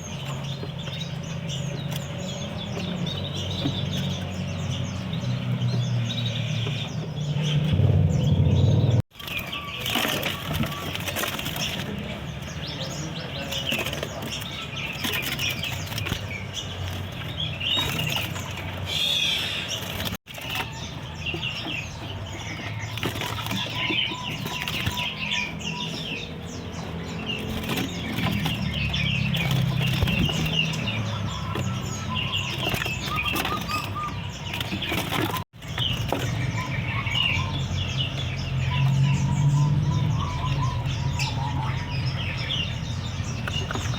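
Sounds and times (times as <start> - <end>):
songbirds chirping: 0.0 - 43.9
wings fluttering: 9.1 - 39.1.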